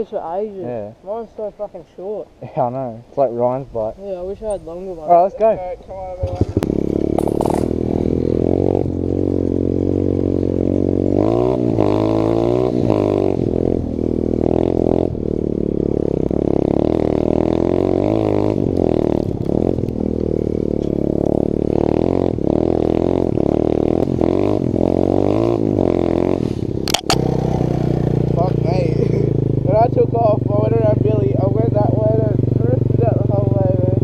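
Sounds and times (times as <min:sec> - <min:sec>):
pit bike engine revving: 0:06.2 - 0:34.0.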